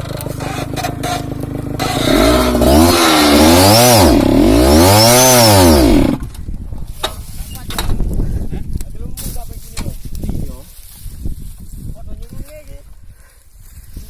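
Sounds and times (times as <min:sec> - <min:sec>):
motorcycle engine revving: 0:00.0 - 0:06.3.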